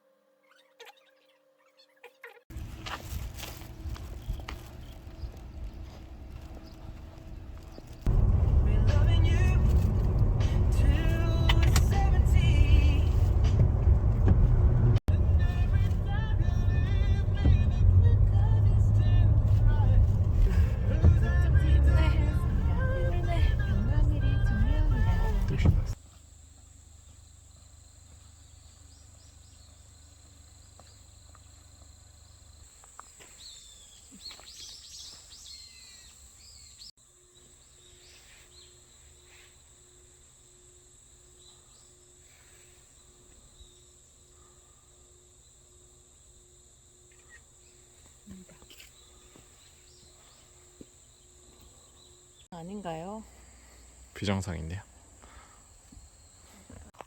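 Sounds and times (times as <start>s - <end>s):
birds chirping: 0.4s - 14.2s, 28.1s - 39.4s, 47.0s - 57.0s.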